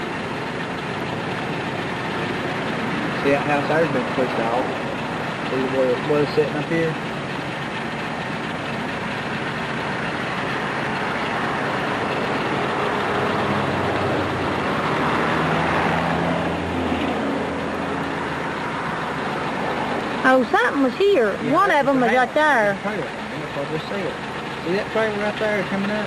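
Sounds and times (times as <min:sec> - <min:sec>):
road and engine noise: 0:00.0 - 0:26.0.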